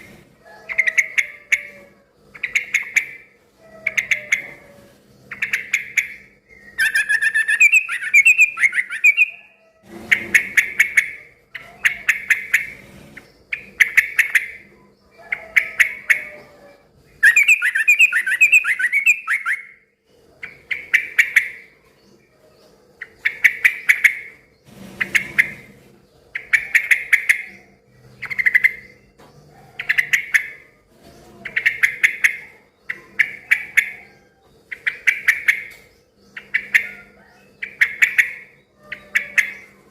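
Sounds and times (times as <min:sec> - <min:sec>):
bulbul singing: 0:00.7 - 0:09.6, 0:17.2 - 0:19.9.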